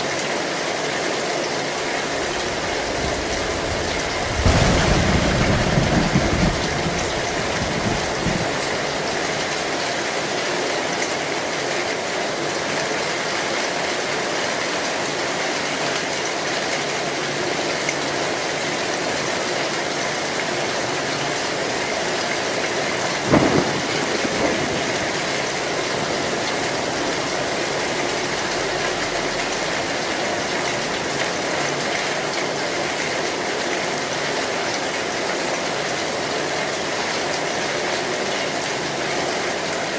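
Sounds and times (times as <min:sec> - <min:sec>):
heavy rain on a metal roof: 0:00.0 - 0:39.9
sharp crack of thunder: 0:02.2 - 0:09.4, 0:23.0 - 0:30.9
low rumble of thunder: 0:02.2 - 0:09.7, 0:22.0 - 0:31.2.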